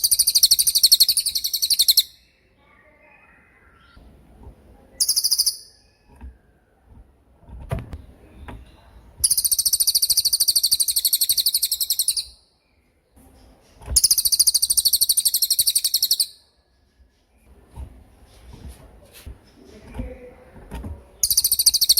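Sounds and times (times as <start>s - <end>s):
bird trilling: 0.0s - 2.3s, 5.0s - 6.1s, 9.2s - 12.4s, 14.0s - 16.4s, 21.2s - 21.9s.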